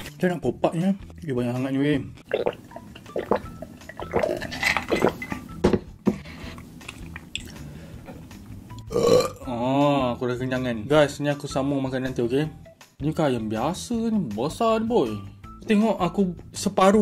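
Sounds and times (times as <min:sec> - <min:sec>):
chewing and mouth smacks: 0:02.1 - 0:05.4, 0:06.6 - 0:07.6
plate and utensils clinking: 0:04.1 - 0:05.8.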